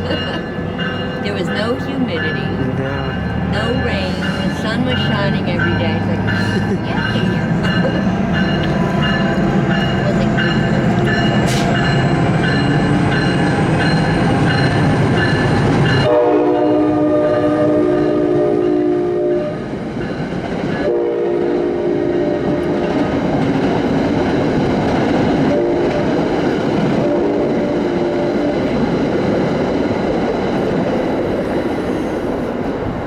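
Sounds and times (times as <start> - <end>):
train wheels clattering on rails: 0.0 - 16.1, 22.0 - 33.0
locomotive air horn blowing: 11.4 - 11.8, 16.0 - 19.7, 20.8 - 22.8.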